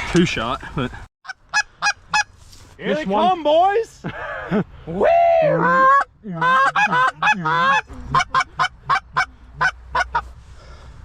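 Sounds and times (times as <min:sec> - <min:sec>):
goose clucking: 0:05.6 - 0:10.3
goose honking: 0:05.6 - 0:10.3.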